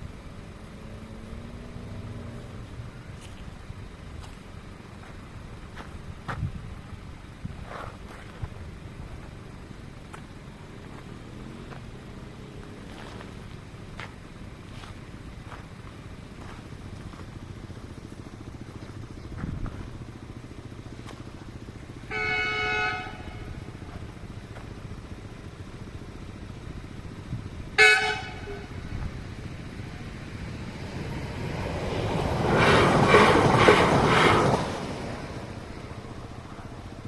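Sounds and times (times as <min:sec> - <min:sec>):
train rumble: 0:00.0 - 0:37.0
train horn blasts: 0:22.1 - 0:23.7, 0:27.8 - 0:28.9.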